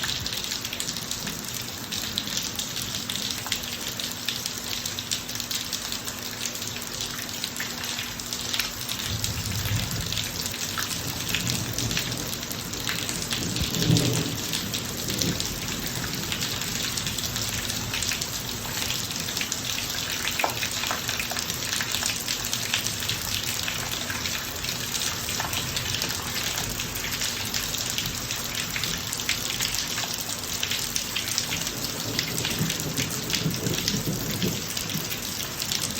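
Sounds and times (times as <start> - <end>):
rain pattering on driveway: 0.0 - 35.9
thunder rumbling: 9.1 - 19.3, 31.7 - 35.9.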